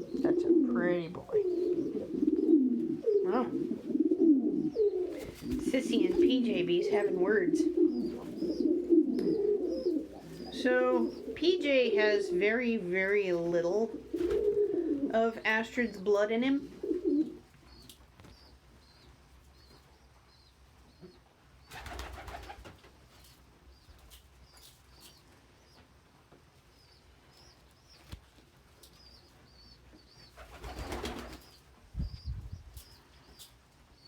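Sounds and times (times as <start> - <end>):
pigeons chirping: 0.0 - 34.0
wings flapping: 5.1 - 6.5, 14.1 - 14.7, 21.7 - 23.0, 30.3 - 31.6.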